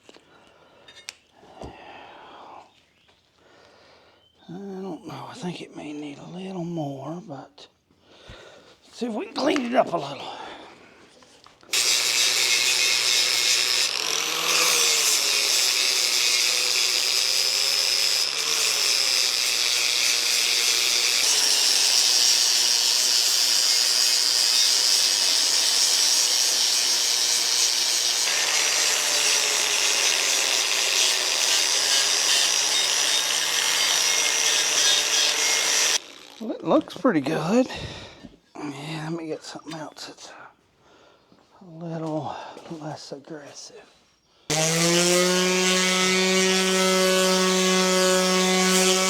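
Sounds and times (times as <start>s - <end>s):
electric grinder grinding metal: 11.7s - 36.5s, 44.5s - 49.0s.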